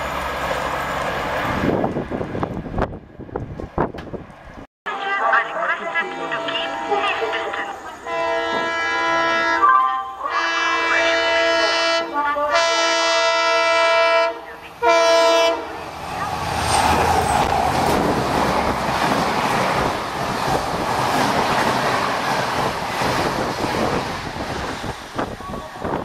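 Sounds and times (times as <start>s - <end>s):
train rushing past: 0.0s - 26.0s
locomotive air horn blast: 6.3s - 15.9s.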